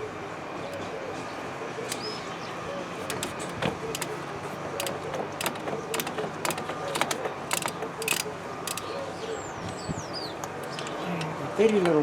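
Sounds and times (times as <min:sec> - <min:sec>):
hand tools clinking on metal: 0:03.0 - 0:09.0.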